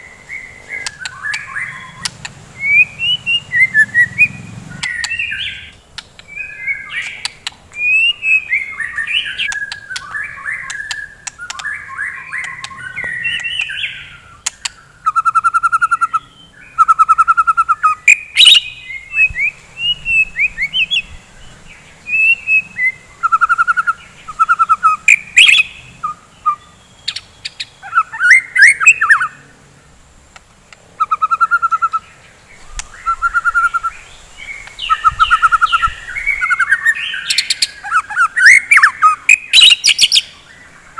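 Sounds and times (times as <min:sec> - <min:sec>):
bird singing whistled phrases: 0:00.0 - 0:05.7, 0:06.3 - 0:21.3, 0:22.0 - 0:29.4, 0:31.0 - 0:32.0, 0:32.7 - 0:40.5
sharp clicks: 0:00.8 - 0:02.4, 0:05.9 - 0:06.4, 0:09.4 - 0:11.8, 0:14.4 - 0:14.8.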